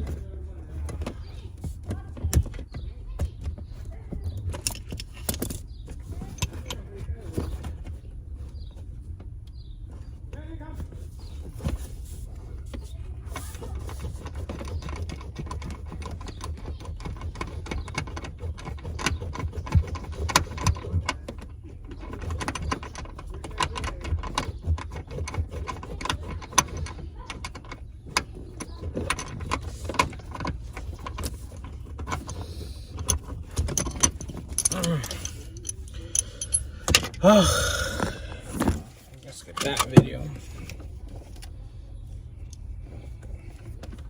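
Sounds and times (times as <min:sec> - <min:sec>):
metallic clicks and clinks: 0:29.0 - 0:37.2.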